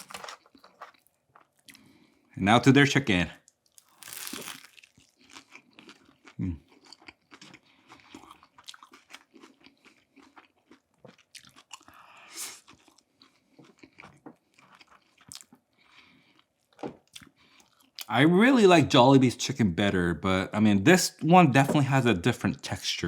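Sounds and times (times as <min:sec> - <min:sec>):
chewing crispy fried chicken: 0:00.0 - 0:02.3, 0:03.4 - 0:18.1.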